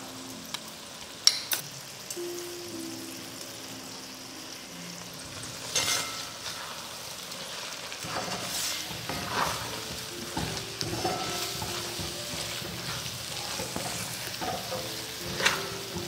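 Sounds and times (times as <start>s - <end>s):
mixture sizzling in a pan: 0.0s - 16.0s
spoon scraping a pan: 5.7s - 16.0s.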